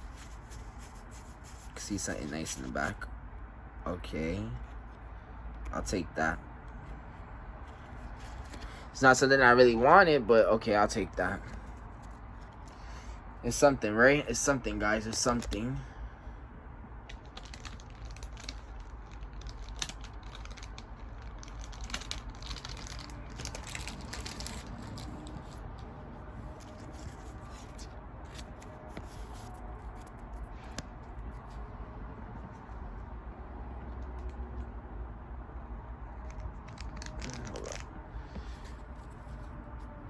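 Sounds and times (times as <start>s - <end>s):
cards and wrappers rustling: 0.0s - 3.0s, 7.6s - 8.9s, 14.3s - 15.8s, 17.0s - 31.6s, 36.2s - 39.6s
low room hum: 0.0s - 40.0s.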